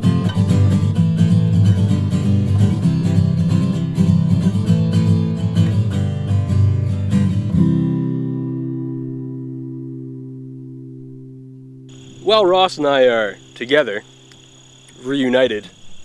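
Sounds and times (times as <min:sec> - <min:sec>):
strummed acoustic guitar: 0:00.0 - 0:14.0.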